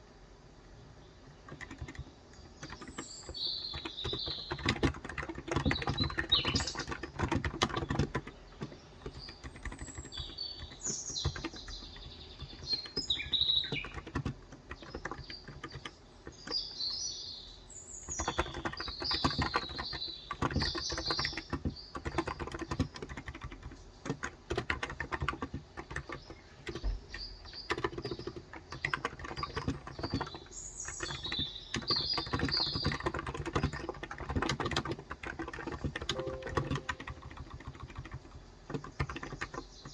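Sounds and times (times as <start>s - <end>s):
small birds chirping: 0.6s - 39.9s
typing on keyboard: 1.2s - 17.0s, 18.0s - 39.9s.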